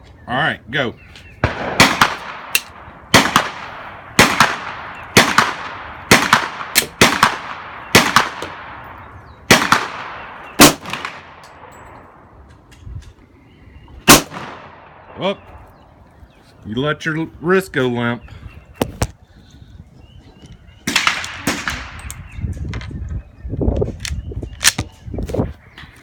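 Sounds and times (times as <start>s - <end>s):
pistol shots echoing: 1.4s - 12.3s, 14.0s - 15.4s, 20.9s - 22.1s.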